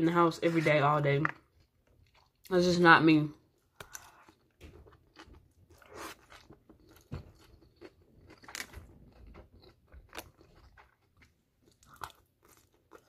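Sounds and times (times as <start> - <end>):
chewing and slurping noodles: 3.6 - 13.0.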